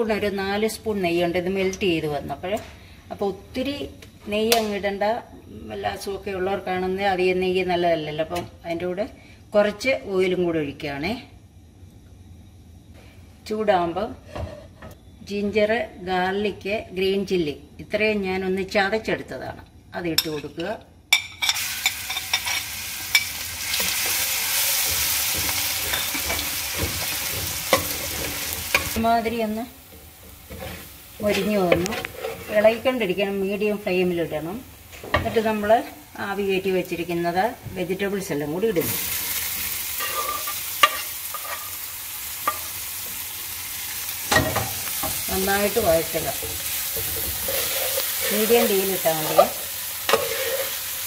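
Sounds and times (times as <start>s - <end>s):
food sizzling in hot oil: 21.1s - 51.0s.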